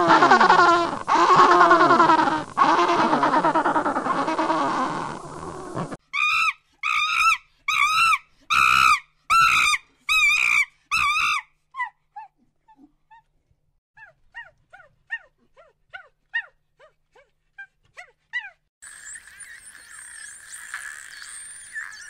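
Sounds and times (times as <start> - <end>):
high yelping animal calls: 0.0 - 11.4, 18.8 - 22.0.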